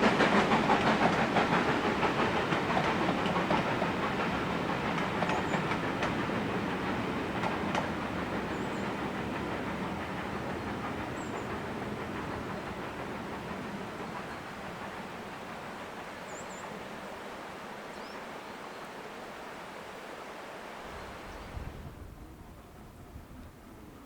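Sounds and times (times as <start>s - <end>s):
train wagons rattling over rails: 0.0s - 16.8s.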